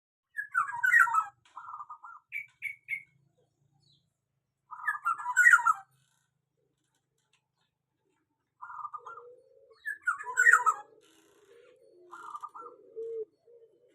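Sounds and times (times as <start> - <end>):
bird singing whistled notes: 2.3 - 3.1.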